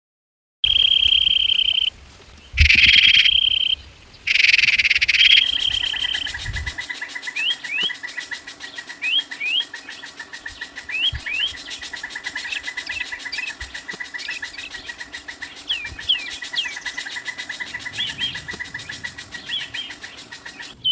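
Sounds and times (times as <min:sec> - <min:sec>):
bird chirping: 0:00.6 - 0:01.9, 0:02.6 - 0:20.9
fast even pulsing sound: 0:05.3 - 0:20.9.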